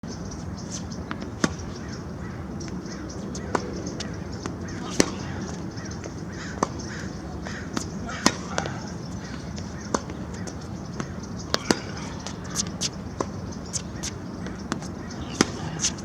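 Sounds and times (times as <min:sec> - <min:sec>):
racket hitting tennis ball: 0:04.8 - 0:05.6, 0:06.5 - 0:16.0.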